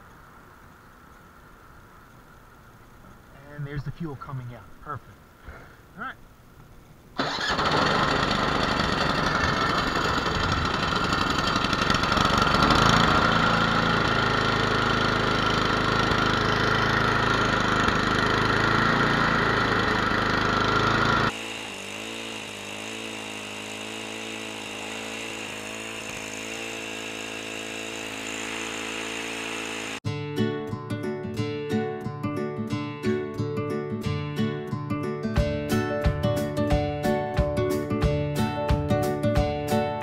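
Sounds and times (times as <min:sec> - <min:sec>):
snowblower engine running: 0:07.2 - 0:30.0.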